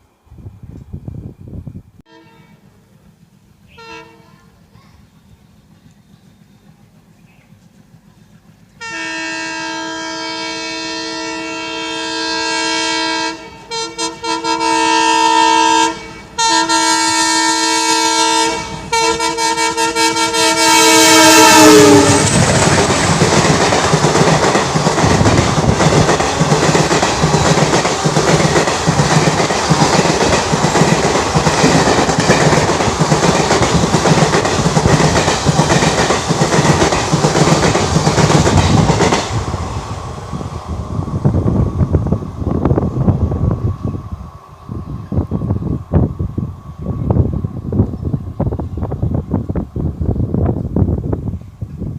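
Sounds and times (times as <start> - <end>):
train coaches rumbling past: 0.0 - 51.9
locomotive horn blasts: 2.1 - 2.6, 3.7 - 4.4, 8.8 - 22.4
wheels clacking over track: 22.0 - 39.4.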